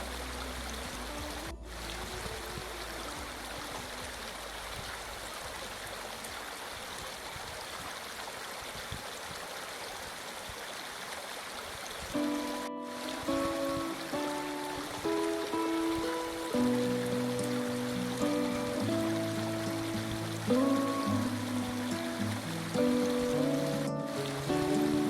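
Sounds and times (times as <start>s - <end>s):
river water rushing: 0.0s - 25.0s
music with sustained notes: 12.2s - 25.0s.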